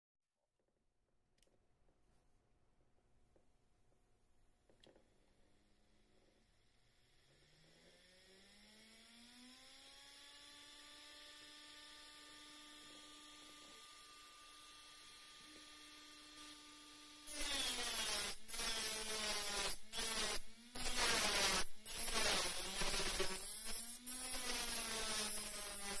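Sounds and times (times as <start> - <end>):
motor whine and hum: 6.3 - 26.0
metal grinding on sanding disc: 17.3 - 26.0.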